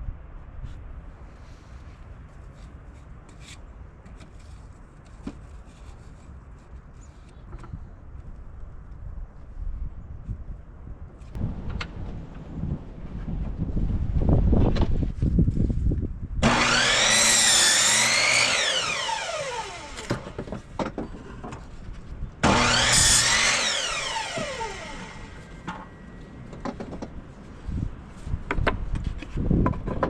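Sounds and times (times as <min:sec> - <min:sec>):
power tool cutting wood: 0:16.4 - 0:20.7, 0:22.4 - 0:25.9.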